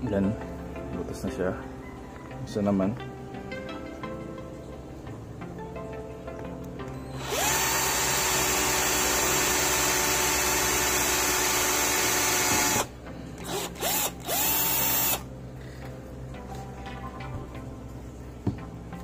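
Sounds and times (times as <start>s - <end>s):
cordless drill whining: 7.1s - 15.2s.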